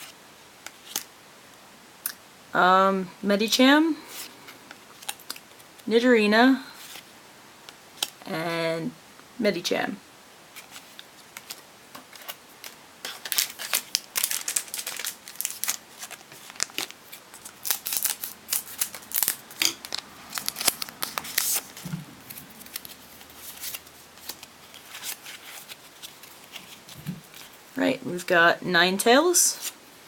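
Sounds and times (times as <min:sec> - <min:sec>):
foil pack crinkling and tearing: 0:04.9 - 0:05.4, 0:10.6 - 0:27.6
cards sliding: 0:14.8 - 0:27.5.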